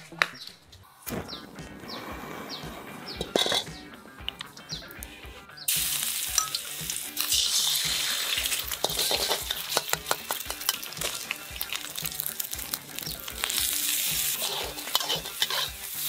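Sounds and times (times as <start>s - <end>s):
metal spatula scraping wok: 2.5s - 4.2s, 5.7s - 16.0s
egg sizzling in hot oil: 5.7s - 16.0s.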